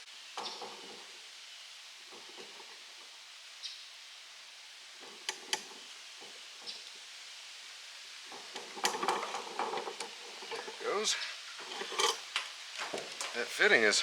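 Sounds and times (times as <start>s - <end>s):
steady low hiss: 0.0s - 14.0s
hand tools clicking on metal: 5.0s - 5.8s, 8.3s - 10.8s, 11.6s - 13.4s.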